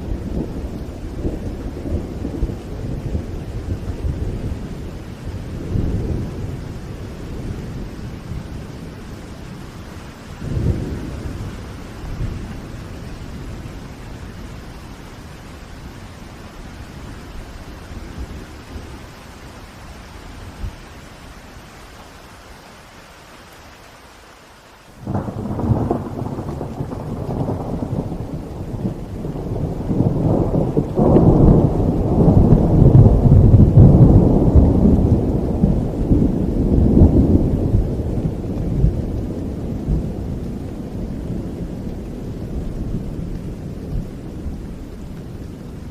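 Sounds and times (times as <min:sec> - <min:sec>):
deep rumble of thunder: 0:00.0 - 0:19.2, 0:25.0 - 0:45.9
steady rain: 0:00.0 - 0:45.9
thunderclap: 0:25.0 - 0:45.9.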